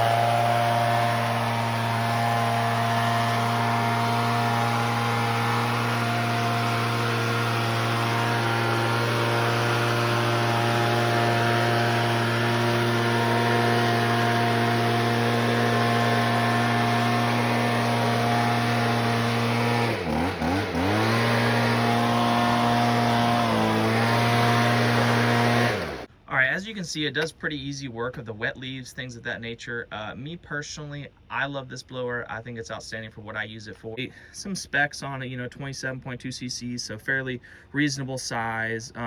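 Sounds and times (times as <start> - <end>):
leaf blower engine revving: 0.0 - 26.1.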